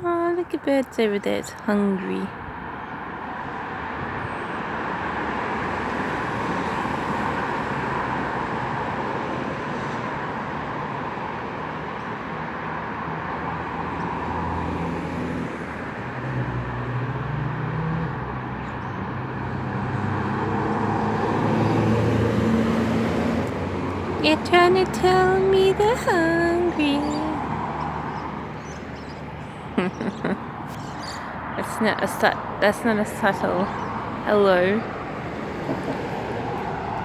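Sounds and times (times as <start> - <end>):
road traffic noise: 0.0 - 37.0
vehicle engine hum: 12.0 - 37.0.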